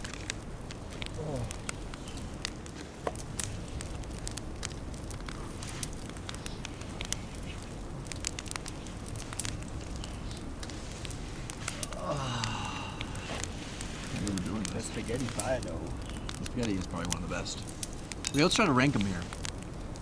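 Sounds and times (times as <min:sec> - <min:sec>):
campfire crackling: 0:00.0 - 0:20.0.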